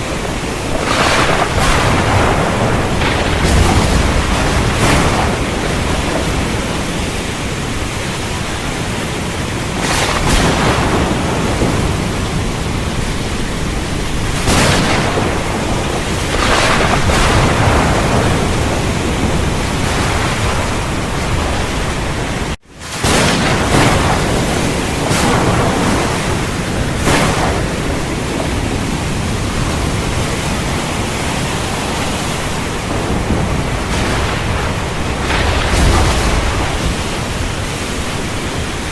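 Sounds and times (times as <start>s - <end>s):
heavy rain: 0.0s - 38.9s
rumbling thunder: 0.0s - 38.9s.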